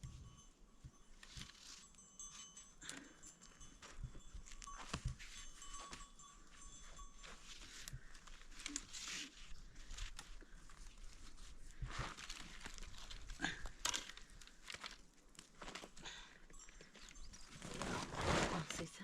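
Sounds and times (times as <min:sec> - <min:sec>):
dry brush crunching and rustling: 0:04.5 - 0:16.0
twigs snapping: 0:12.0 - 0:16.1.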